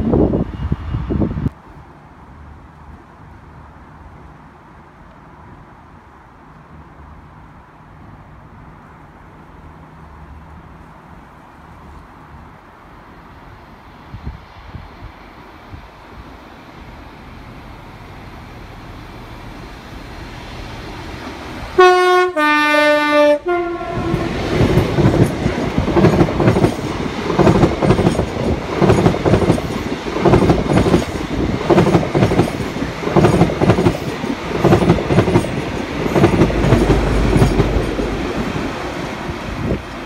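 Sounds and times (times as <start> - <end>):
two-tone train horn: 21.8 - 24.4
wheels clattering on rails: 24.0 - 40.0.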